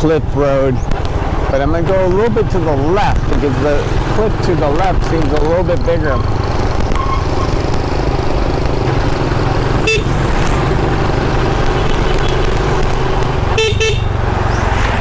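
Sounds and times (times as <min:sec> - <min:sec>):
motorbike engine running: 0:00.7 - 0:15.0
horn toots: 0:09.6 - 0:12.8, 0:13.4 - 0:14.2.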